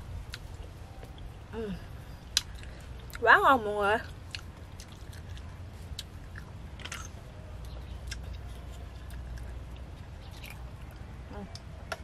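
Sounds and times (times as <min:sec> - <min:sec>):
low steady hum: 0:00.0 - 0:12.0
person chewing: 0:02.2 - 0:03.2, 0:04.0 - 0:11.7.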